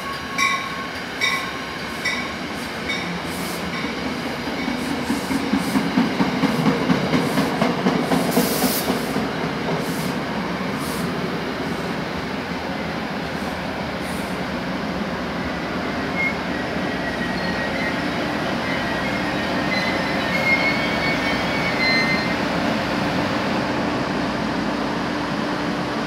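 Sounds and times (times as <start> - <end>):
train rolling to a stop: 0.0 - 26.0
high brake squeals: 16.1 - 22.4.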